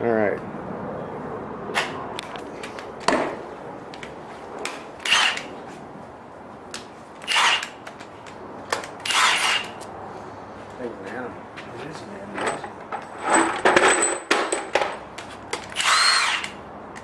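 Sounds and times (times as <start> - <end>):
short rasping bursts: 7.2 - 7.8, 9.0 - 9.8, 15.8 - 16.6.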